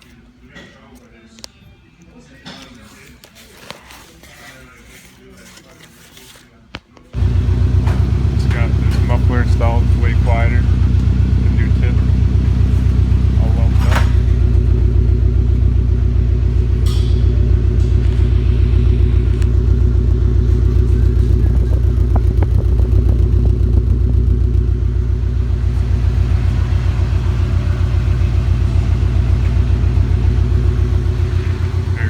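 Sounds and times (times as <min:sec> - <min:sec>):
car engine idling: 0:07.2 - 0:32.0.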